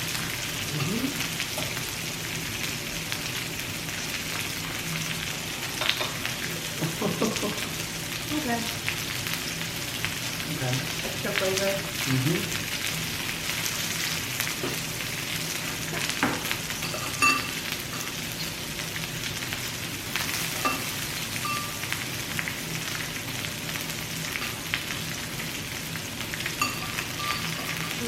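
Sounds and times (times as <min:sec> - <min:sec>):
meat sizzling on a grill: 0:00.0 - 0:28.0
metal utensils clinking: 0:16.8 - 0:18.2, 0:26.6 - 0:28.0.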